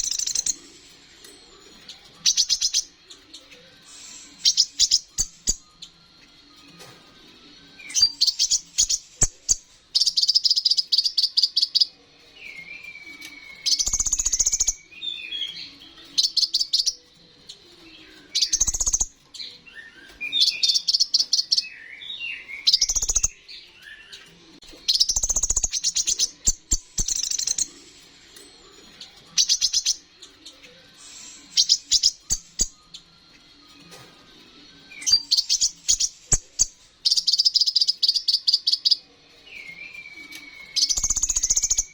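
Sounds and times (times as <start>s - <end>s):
bird chattering trills: 0.0s - 0.8s, 13.5s - 14.9s, 22.6s - 23.4s, 24.9s - 27.8s, 31.0s - 32.8s, 40.7s - 41.9s.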